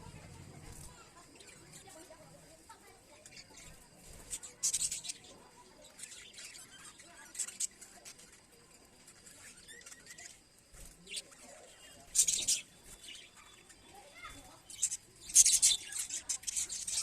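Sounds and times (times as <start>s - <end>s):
budgerigars chirping: 11.0s - 13.8s, 14.7s - 17.0s.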